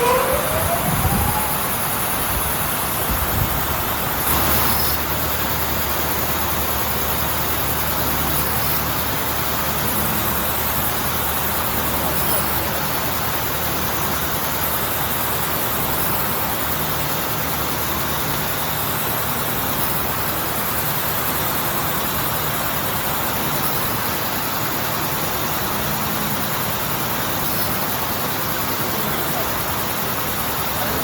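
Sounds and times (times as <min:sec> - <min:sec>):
low hum: 0:00.0 - 0:02.4.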